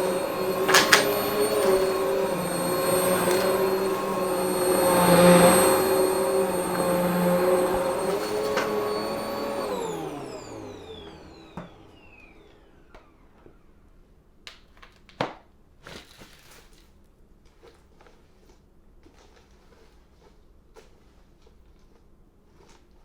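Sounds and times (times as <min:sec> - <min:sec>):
vacuum cleaner motor whine: 0:00.0 - 0:14.1.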